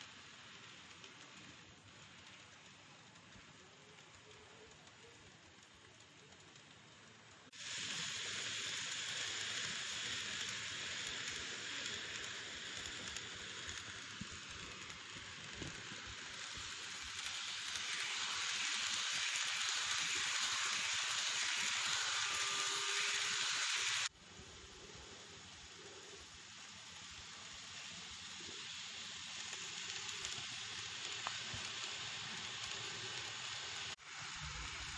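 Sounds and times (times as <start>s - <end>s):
model train rattling on track: 0.0s - 34.9s.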